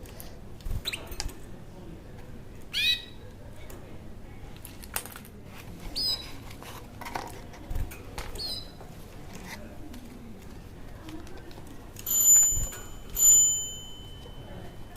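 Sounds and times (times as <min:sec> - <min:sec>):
small bird chirping: 0:02.7 - 0:03.2, 0:05.9 - 0:06.2, 0:08.4 - 0:08.8.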